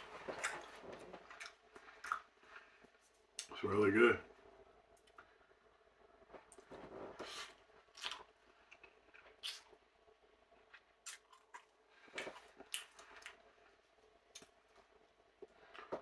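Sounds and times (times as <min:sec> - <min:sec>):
wet chewing: 0:00.3 - 0:02.7, 0:07.2 - 0:09.7, 0:10.7 - 0:13.4.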